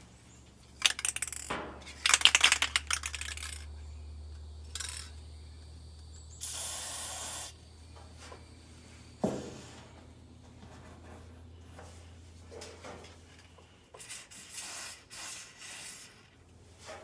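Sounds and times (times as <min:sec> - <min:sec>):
short hissing puffs: 0:06.4 - 0:07.6, 0:14.0 - 0:16.4.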